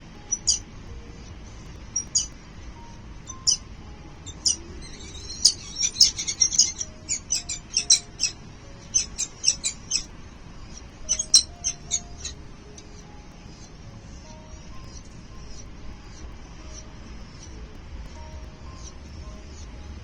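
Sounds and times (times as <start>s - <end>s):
faint background music: 0.0s - 20.0s
nestling birds chirping: 0.0s - 20.0s.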